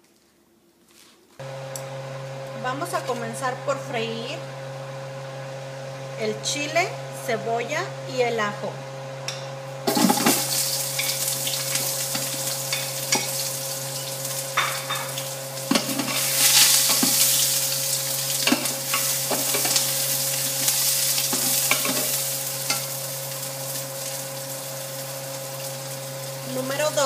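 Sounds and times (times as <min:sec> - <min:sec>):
food sizzling in a pot: 0:09.8 - 0:27.0
utensil clinking and scraping pot: 0:09.9 - 0:17.4, 0:18.4 - 0:19.9, 0:20.6 - 0:22.9.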